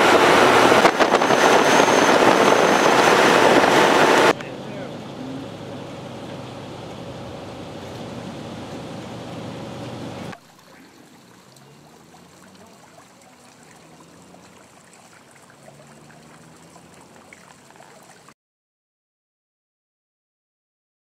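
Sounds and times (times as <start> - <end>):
loud rushing noise: 0.0 - 5.2
water trickling: 10.3 - 18.4.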